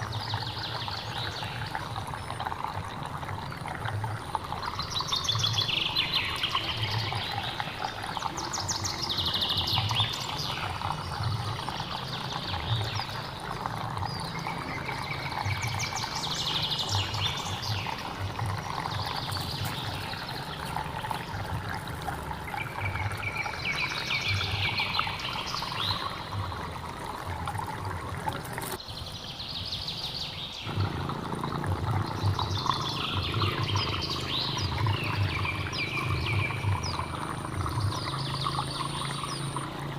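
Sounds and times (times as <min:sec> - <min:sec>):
stream water rushing: 0:00.0 - 0:39.9
bird singing trilled phrases: 0:04.5 - 0:21.4, 0:22.5 - 0:26.6, 0:28.8 - 0:39.7.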